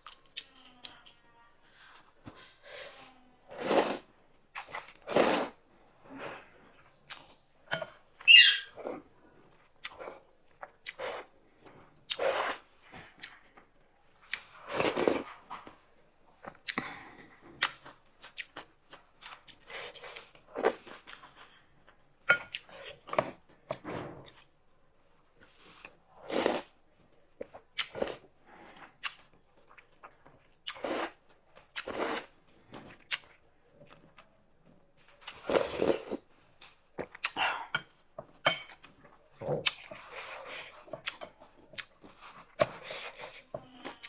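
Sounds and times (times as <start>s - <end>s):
slurping noodle soup: 1.8s - 5.6s, 10.9s - 11.4s, 12.1s - 12.7s, 25.7s - 26.7s, 30.7s - 31.2s, 31.8s - 33.2s, 35.3s - 36.3s, 41.8s - 43.4s
person chewing: 27.4s - 34.3s, 35.2s - 44.0s.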